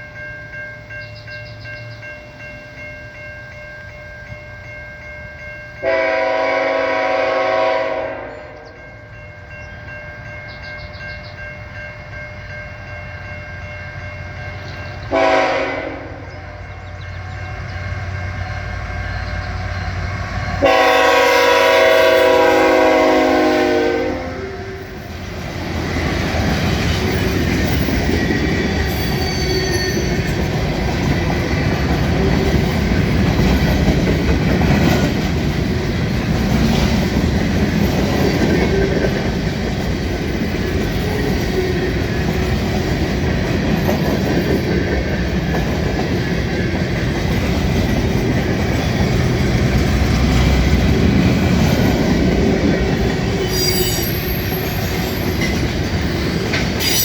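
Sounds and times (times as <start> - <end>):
train wheels rumbling on rail: 0.0 - 57.0
high-pitched wheel squeals: 28.6 - 30.4, 53.4 - 55.5, 56.2 - 57.0.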